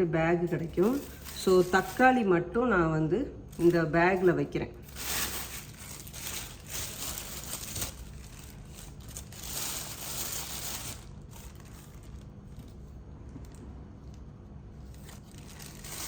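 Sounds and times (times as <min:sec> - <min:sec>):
cloth bag rustling: 0:00.5 - 0:02.1, 0:04.8 - 0:12.7, 0:14.9 - 0:16.0.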